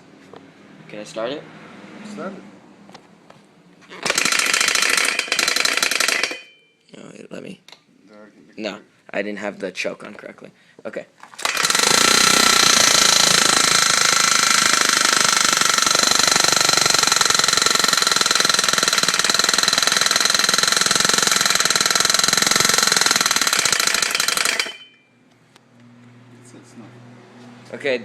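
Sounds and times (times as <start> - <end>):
small engine running: 4.0 - 6.4, 11.4 - 24.9.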